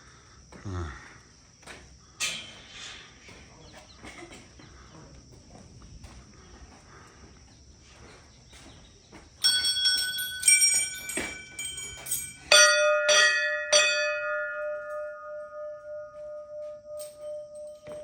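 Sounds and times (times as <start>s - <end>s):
deep bell ringing: 9.4s - 18.0s
high-pitched bell struck: 9.4s - 18.0s.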